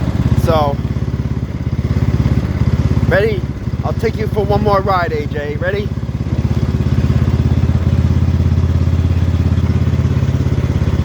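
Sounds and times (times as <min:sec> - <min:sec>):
garden tractor engine running: 0:00.0 - 0:11.0.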